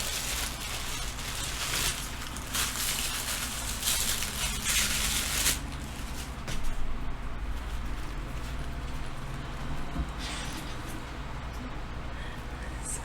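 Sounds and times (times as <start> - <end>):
clothing packaging rustling: 0.0 - 6.8.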